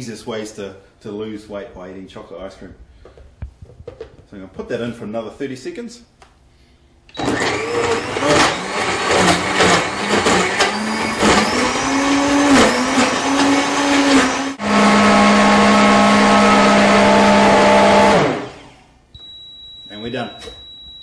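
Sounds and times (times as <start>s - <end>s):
blender crushing ice: 7.1s - 18.7s.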